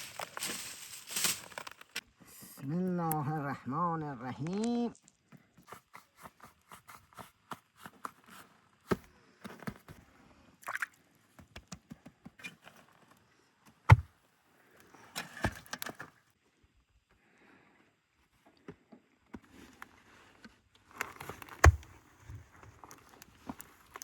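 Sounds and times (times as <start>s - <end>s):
rustling scrape: 0.0s - 2.0s.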